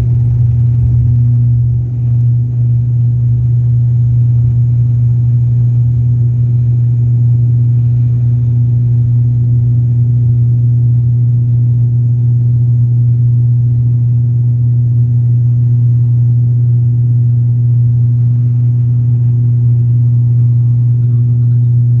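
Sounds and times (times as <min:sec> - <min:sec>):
airliner engines droning: 0:00.0 - 0:11.2, 0:19.0 - 0:22.0.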